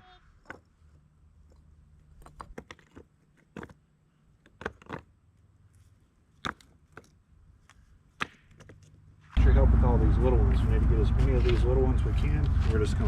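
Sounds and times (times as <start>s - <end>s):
concrete chunks knocking together: 1.4s - 3.8s, 4.4s - 5.1s.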